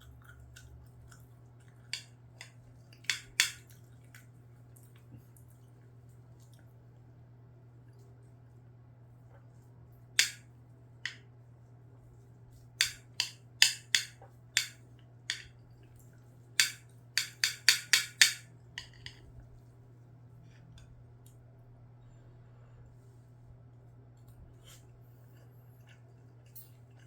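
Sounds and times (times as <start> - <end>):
utensils clinking against dish: 1.9 - 3.7, 12.8 - 15.5, 16.6 - 19.2, 26.4 - 27.0.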